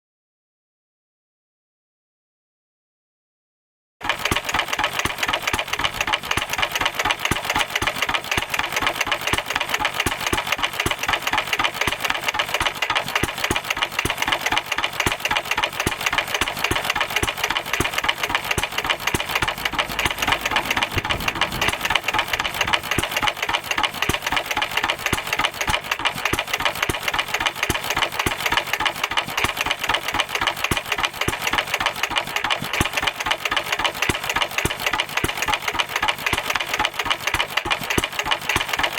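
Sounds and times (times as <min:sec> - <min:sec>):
stationary engine running: 0:04.0 - 0:38.9.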